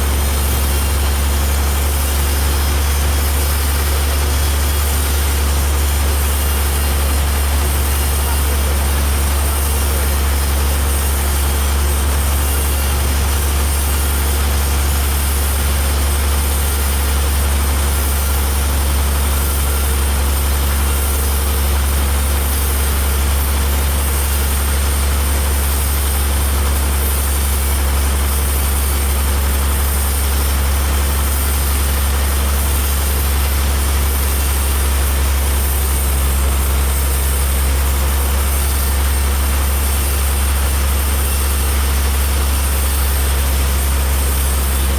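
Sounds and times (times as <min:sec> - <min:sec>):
heavy engine droning: 0:00.0 - 0:24.4.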